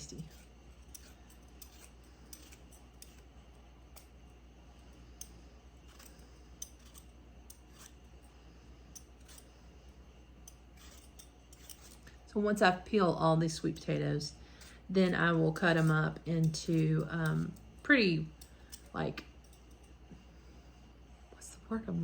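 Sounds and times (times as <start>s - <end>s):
blade scraping potato skin: 0.0s - 3.3s, 5.2s - 8.1s, 8.9s - 9.5s, 10.4s - 12.2s.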